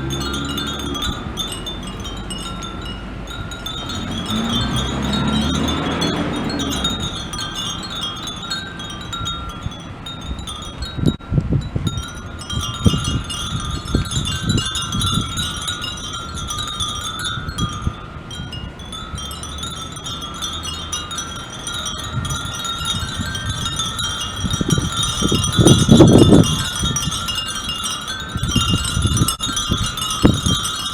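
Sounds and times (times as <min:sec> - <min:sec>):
wind chimes tinkling: 0:00.0 - 0:30.9.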